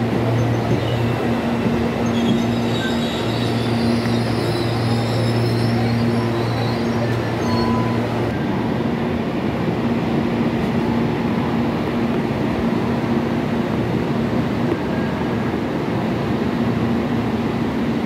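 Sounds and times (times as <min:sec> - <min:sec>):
electric train hum: 0:00.0 - 0:18.0
rush of train noise: 0:00.0 - 0:18.0
high wheel squeal: 0:00.2 - 0:08.5.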